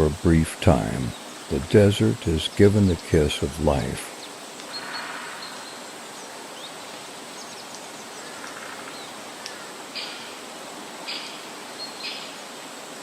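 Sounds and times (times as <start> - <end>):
faint bird calls: 0.0 - 10.4
outdoor noise bed: 0.0 - 13.0.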